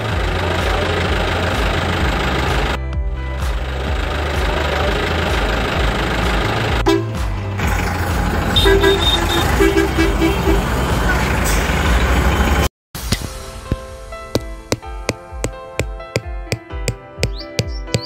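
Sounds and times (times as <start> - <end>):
music: 0.0 - 10.6, 13.0 - 18.0
vehicle engine running: 0.0 - 12.7
horn short beeps: 6.9 - 7.2, 8.6 - 10.6.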